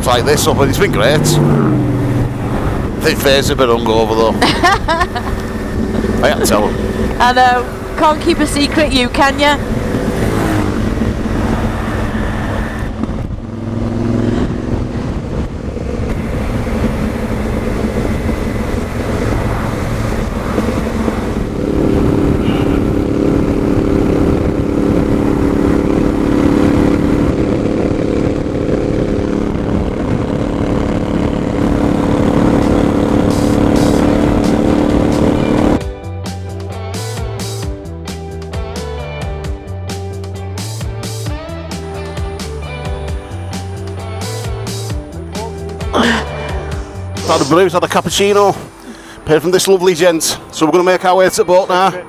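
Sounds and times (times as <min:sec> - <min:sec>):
wind noise on microphone: 0:00.0 - 0:36.0
motorcycle engine running: 0:00.0 - 0:48.8.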